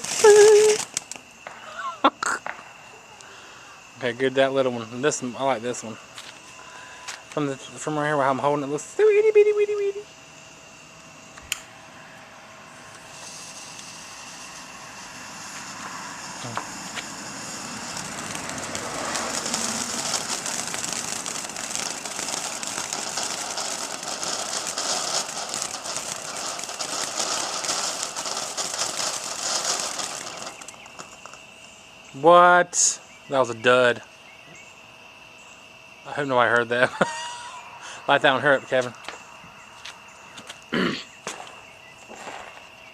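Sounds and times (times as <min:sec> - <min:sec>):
fountain firework crackling hiss: 0:00.0 - 0:34.0, 0:34.6 - 0:42.9
sharp click: 0:11.4 - 0:11.7.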